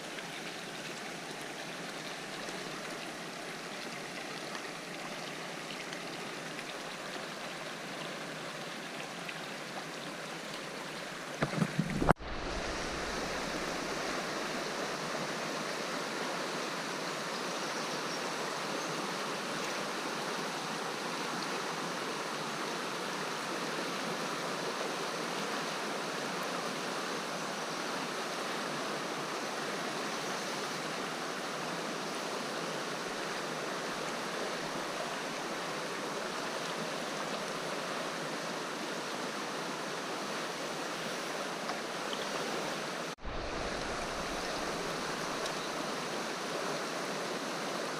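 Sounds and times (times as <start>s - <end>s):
river water rushing: 0.0s - 47.9s
low bumps: 11.4s - 13.9s.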